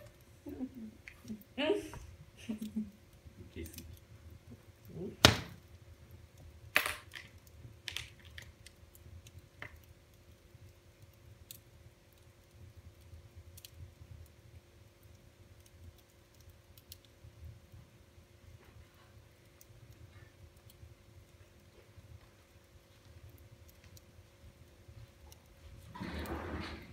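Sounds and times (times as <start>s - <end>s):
wood fire crackling: 0.0s - 26.9s
fire pops: 3.4s - 14.4s.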